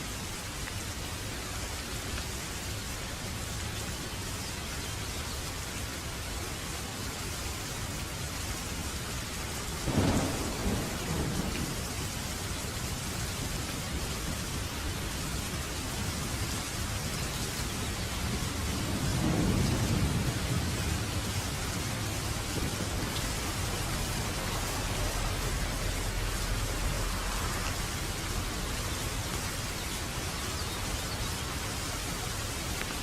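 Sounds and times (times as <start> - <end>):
steady rain hissing: 0.0 - 33.0
low thunder rumble: 9.8 - 15.0, 17.9 - 29.3.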